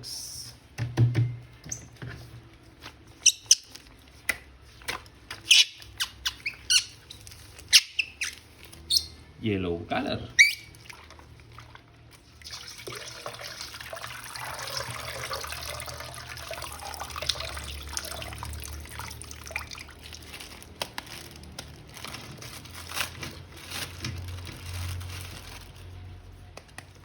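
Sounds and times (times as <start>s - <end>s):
water trickling and splashing: 10.6s - 22.0s.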